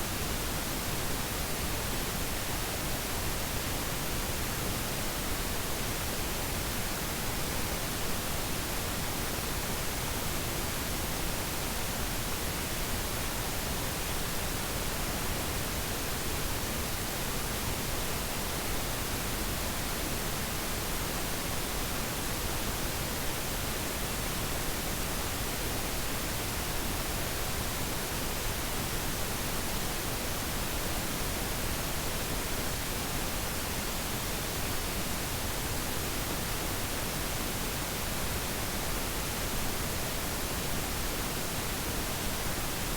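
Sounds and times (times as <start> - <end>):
static noise hiss: 0.0 - 42.9.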